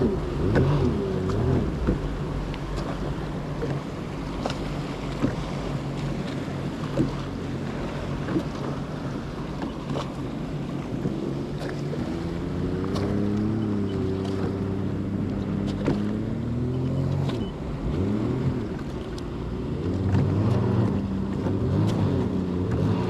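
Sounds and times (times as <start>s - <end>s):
hull knocking on water: 0.0s - 8.8s
jet ski engine running: 0.0s - 23.0s.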